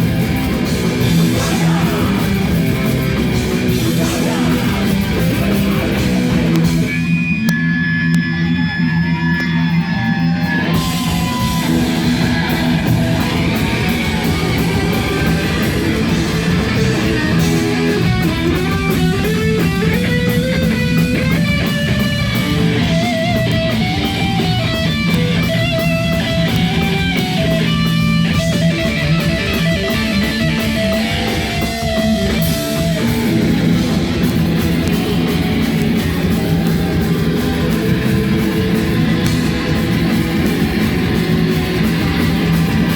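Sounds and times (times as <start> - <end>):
heavy rock music: 0.0 - 42.9.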